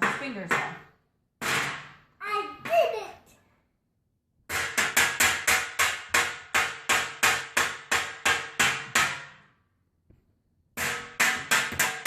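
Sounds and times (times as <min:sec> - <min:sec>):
rhythmic banging on hard object: 0:00.0 - 0:02.0, 0:04.5 - 0:09.5, 0:10.8 - 0:12.0.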